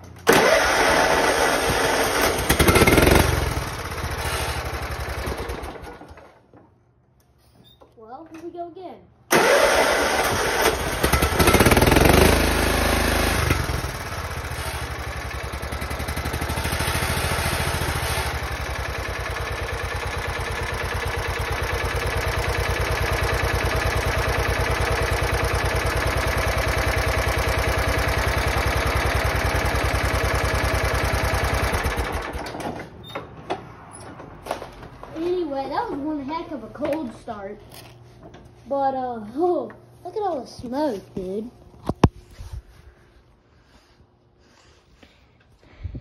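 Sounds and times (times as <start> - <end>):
engine running: 0.0 - 6.4, 9.3 - 32.9.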